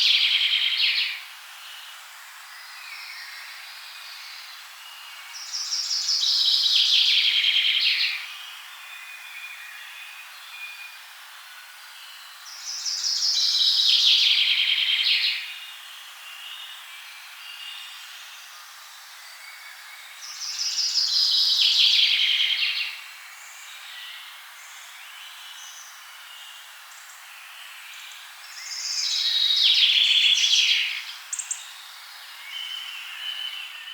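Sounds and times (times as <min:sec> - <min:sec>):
songbird trilling: 0:28.7 - 0:31.7.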